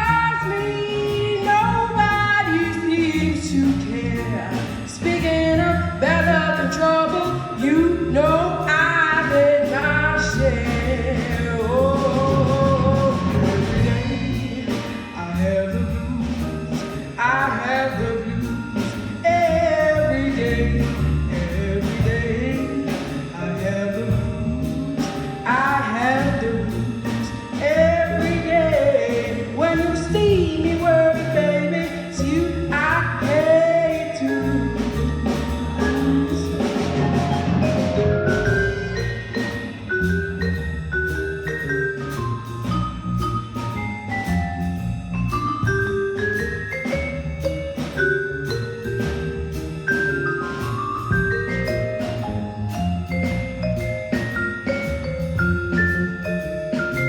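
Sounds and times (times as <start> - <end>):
woman singing: 0.0 - 37.2
bass guitar: 0.0 - 57.0
drum kit beat: 0.0 - 57.0
vibraphone: 0.0 - 57.0.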